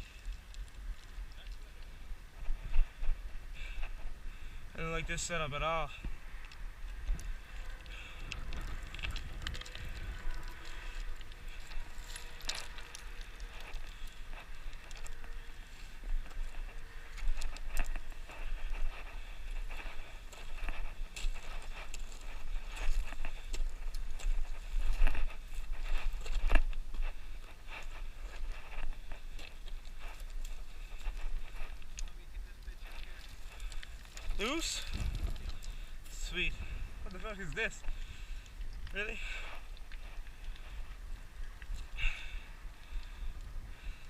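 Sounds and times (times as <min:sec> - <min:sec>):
wind buffeting microphone: 0:00.0 - 0:44.0
boots and hands scraping rock: 0:07.2 - 0:36.5.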